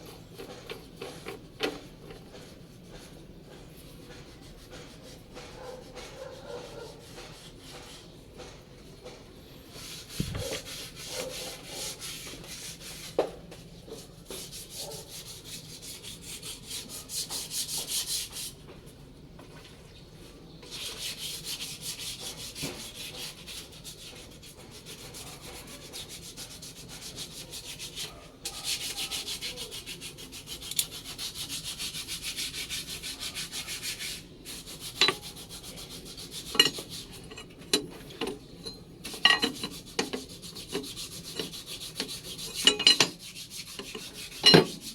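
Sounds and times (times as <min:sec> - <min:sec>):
rapid scraping strokes: 0:09.7 - 0:13.2, 0:20.7 - 0:44.9.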